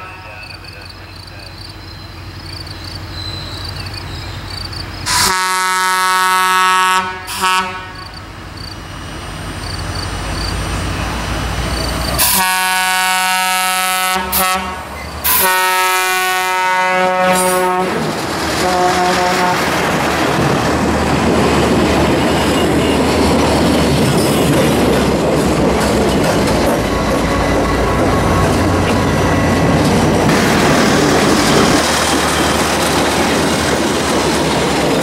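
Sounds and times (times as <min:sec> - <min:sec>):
multi-chime train horn: 0:00.0 - 0:00.8, 0:05.1 - 0:08.1, 0:12.2 - 0:18.0
train wheels clacking over rail joints: 0:17.3 - 0:35.0.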